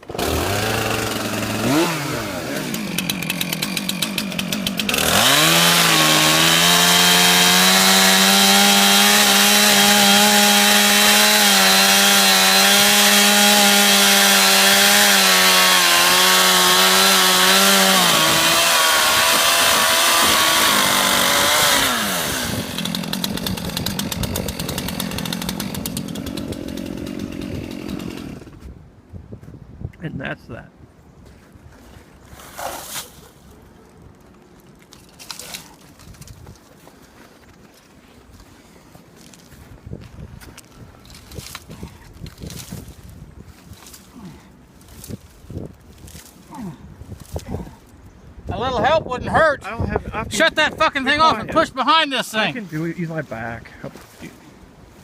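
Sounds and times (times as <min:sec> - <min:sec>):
chainsaw cutting tree trunk: 0:00.0 - 0:28.6
chainsaw engine: 0:00.0 - 0:28.6.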